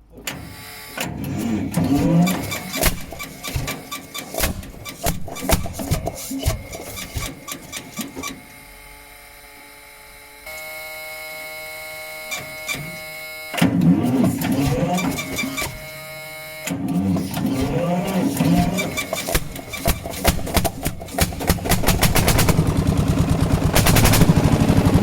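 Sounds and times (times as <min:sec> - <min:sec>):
engine humming: 0:01.2 - 0:08.7, 0:12.3 - 0:25.0
engine firing unevenly: 0:16.7 - 0:25.0.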